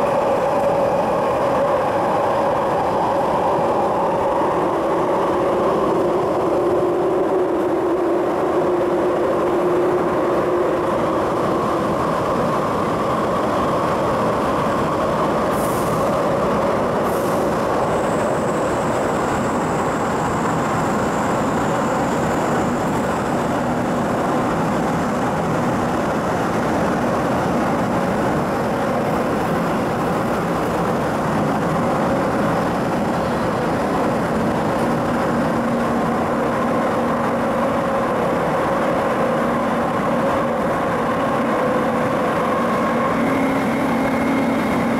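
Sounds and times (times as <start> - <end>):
train wheels rumbling on rail: 0.0 - 44.9
faint high whistle: 42.8 - 44.9.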